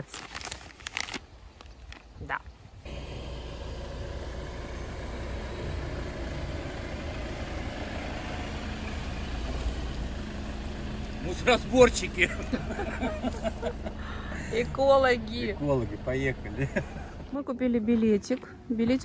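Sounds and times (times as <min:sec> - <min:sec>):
car engine idling: 0:02.9 - 0:17.4.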